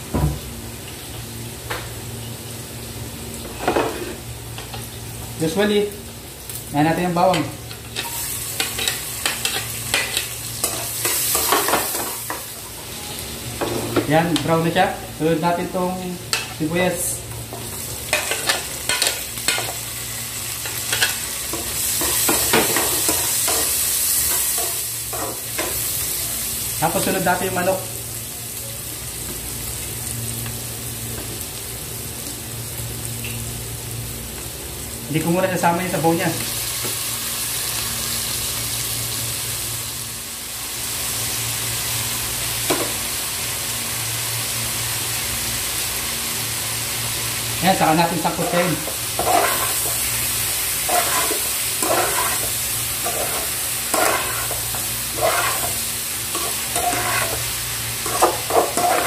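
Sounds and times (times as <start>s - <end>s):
onion sizzling in oil: 0.0s - 59.0s
utensil scraping pan: 50.9s - 57.4s, 58.0s - 59.0s.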